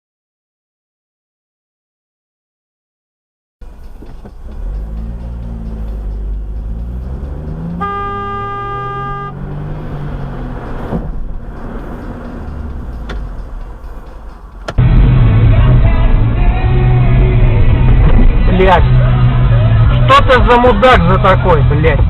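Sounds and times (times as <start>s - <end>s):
car engine and road noise: 3.6s - 22.0s
car horn blast: 7.4s - 9.8s.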